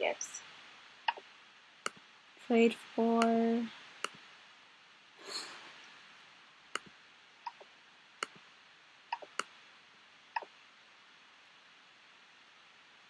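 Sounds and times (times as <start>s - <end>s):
faint hiss: 0.0s - 13.0s
computer mouse clicks: 9.1s - 9.5s.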